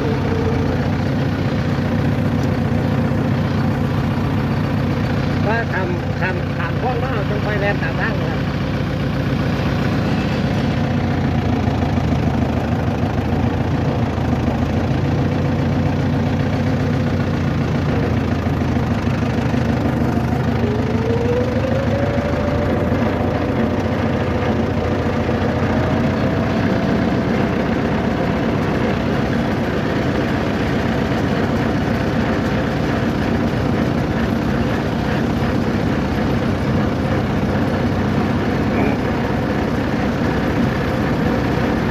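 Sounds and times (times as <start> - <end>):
engine hum with road noise: 0.0 - 41.9
faint rising whine: 19.9 - 29.8.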